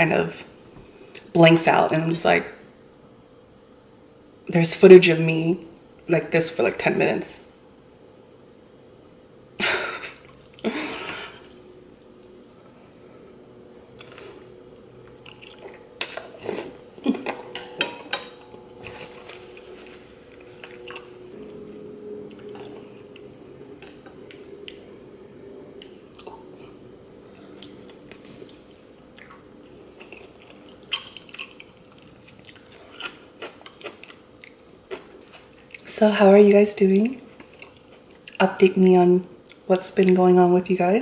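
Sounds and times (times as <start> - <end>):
faint steady hum: 0.0 - 41.0
person slurping and chewing noodles: 14.0 - 14.5, 15.1 - 17.5.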